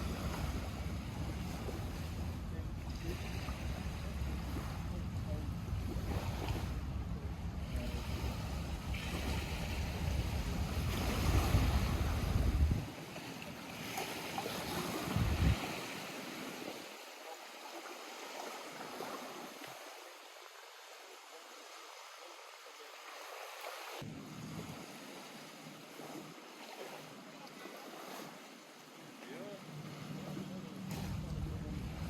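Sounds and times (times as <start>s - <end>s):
lake waves lapping at shore: 0.0s - 32.0s
wind buffeting microphone: 5.6s - 12.9s, 14.8s - 15.9s.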